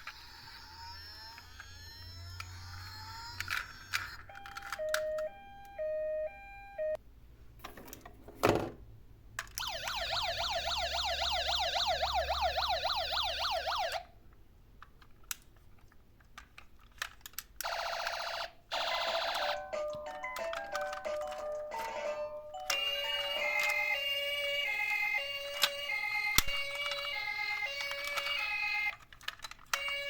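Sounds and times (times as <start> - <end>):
two-tone siren: 0.0 - 7.0, 9.6 - 14.1, 22.7 - 29.0
warbling siren: 9.6 - 14.0, 22.8 - 28.9.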